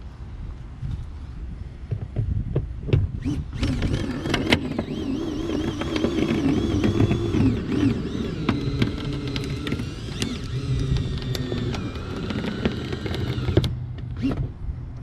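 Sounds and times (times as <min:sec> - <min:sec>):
sharp clicks: 0:03.2 - 0:14.4
cordless drill whining: 0:03.2 - 0:14.5.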